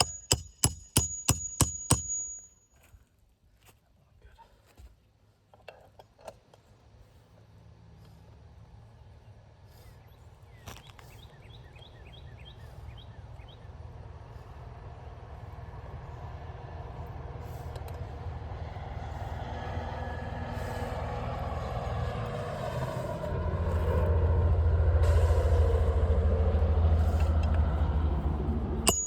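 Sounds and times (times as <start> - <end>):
heavy vehicle engine rumble: 6.7 - 29.0.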